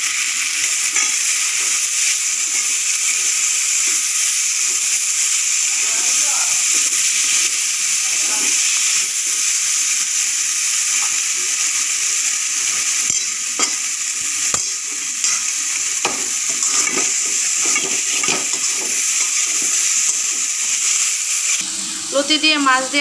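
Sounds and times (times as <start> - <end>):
vegetables sizzling in oil: 0.0 - 23.0
spatula scraping and knocking pan: 12.6 - 13.9, 14.5 - 20.2.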